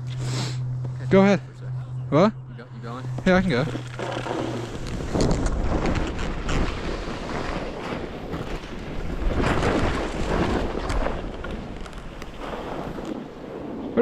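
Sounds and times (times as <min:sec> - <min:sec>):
wind buffeting microphone: 0:02.4 - 0:14.0
edges scraping over hard snow: 0:03.4 - 0:11.1.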